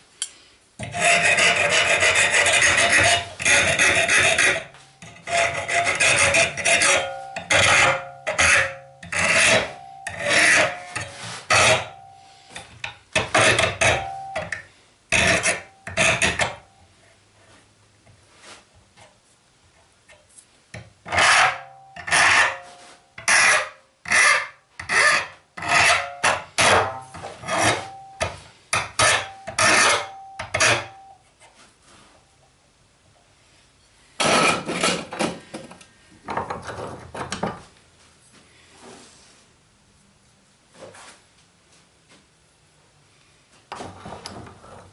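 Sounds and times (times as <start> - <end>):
hand file scraping steel: 0.8 - 16.6, 21.1 - 31.0, 34.2 - 35.1.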